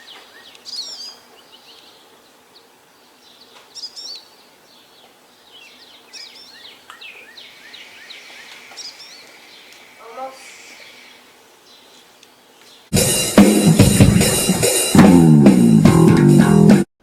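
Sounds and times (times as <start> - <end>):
faint background hiss: 0.0 - 12.9
small birds chirping: 0.0 - 12.9.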